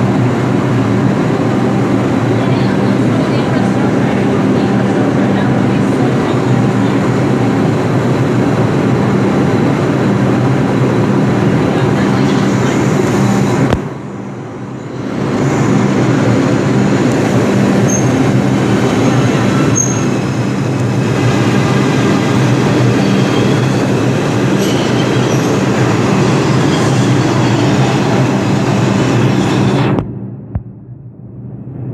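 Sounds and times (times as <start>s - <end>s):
subway train wheels rumbling: 0.0s - 31.9s
high wheel squeals: 17.8s - 18.3s, 19.0s - 20.3s, 22.8s - 27.9s.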